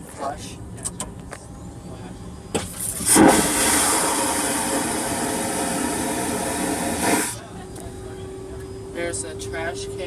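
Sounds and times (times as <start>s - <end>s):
vacuum toilet suction whoosh: 2.9s - 7.4s.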